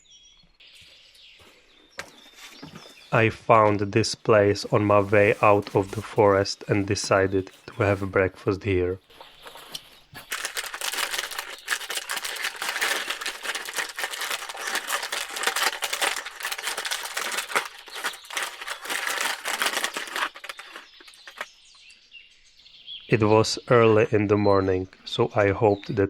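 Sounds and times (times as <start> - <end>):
packaging crinkling and rustling: 4.8 - 8.0, 9.0 - 21.5.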